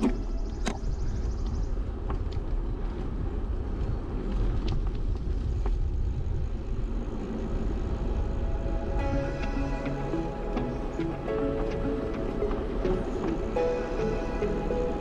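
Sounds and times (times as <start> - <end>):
road noise: 0.0 - 15.0
wind rumble on microphone: 0.0 - 15.0.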